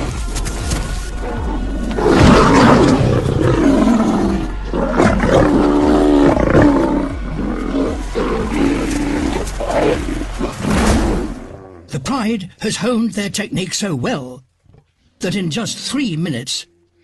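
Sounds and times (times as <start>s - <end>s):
lions growling and snarling: 0.0s - 11.9s.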